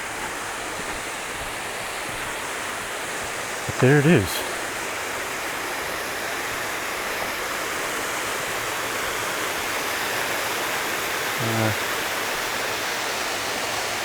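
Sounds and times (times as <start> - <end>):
low hum like voice: 3.7 - 4.5, 11.4 - 11.8.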